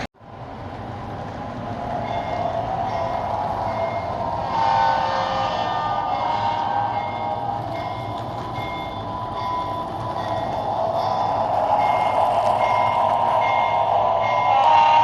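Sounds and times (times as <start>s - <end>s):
model train whirring rumble: 0.2s - 15.0s.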